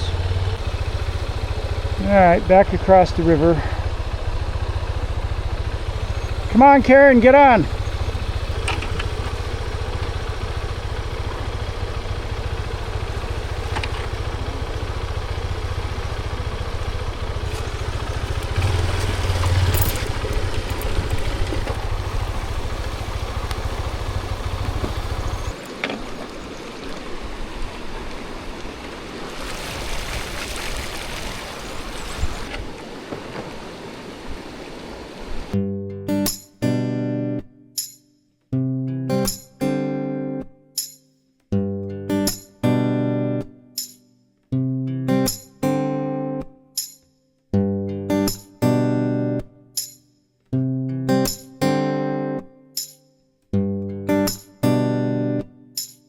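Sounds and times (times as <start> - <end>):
motorcycle engine running: 0.0 - 25.6
river rushing: 0.0 - 35.6.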